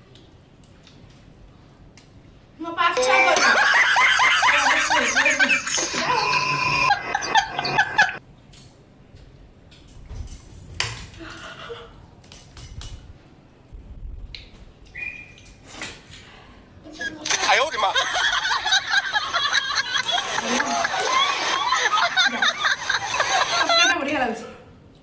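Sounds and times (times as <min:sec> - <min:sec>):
people talking and laughing: 0:03.0 - 0:08.2, 0:16.9 - 0:24.4.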